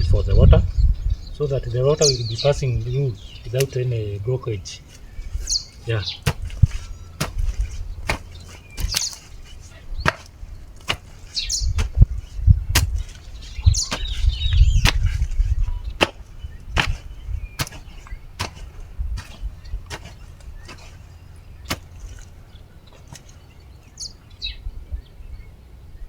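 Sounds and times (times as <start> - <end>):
scraping soil: 1.7 - 24.2
digging tool chopping soil: 3.5 - 4.1, 4.8 - 23.5.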